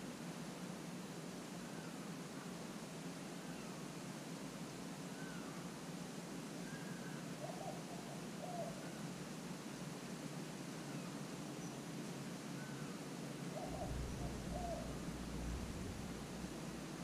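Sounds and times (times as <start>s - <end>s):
faint outdoor hiss: 0.0s - 17.0s
bird cooing: 6.7s - 8.9s, 13.5s - 17.0s
low rumble: 13.6s - 17.0s.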